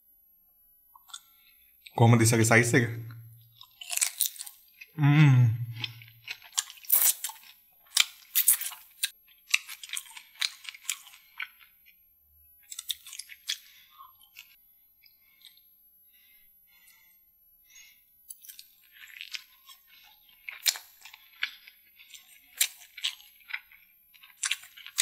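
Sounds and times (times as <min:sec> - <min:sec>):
close chewing with crunches: 0:00.9 - 0:02.0, 0:03.4 - 0:05.0, 0:05.6 - 0:12.0, 0:12.6 - 0:25.0
person humming: 0:05.0 - 0:05.8.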